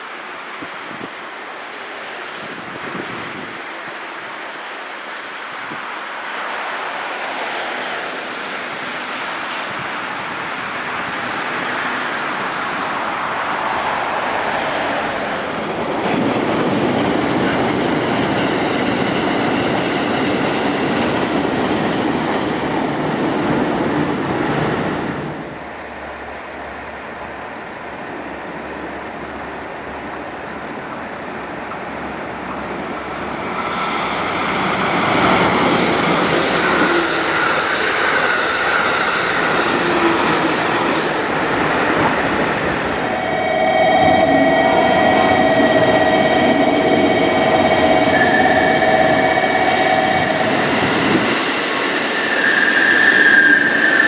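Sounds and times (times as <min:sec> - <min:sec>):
train rumbling past: 0:00.0 - 0:54.0.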